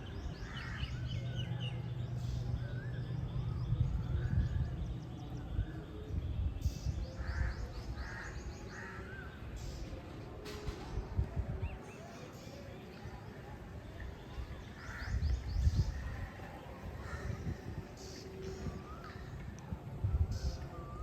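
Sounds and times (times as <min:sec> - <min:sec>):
low steady rumble: 0:00.0 - 0:07.6
birds chirping: 0:00.0 - 0:21.0.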